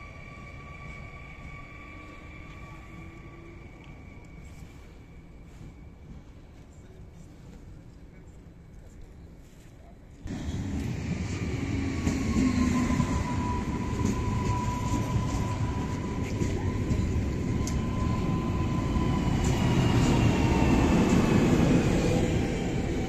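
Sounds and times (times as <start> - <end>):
train rumble: 10.2 - 23.0.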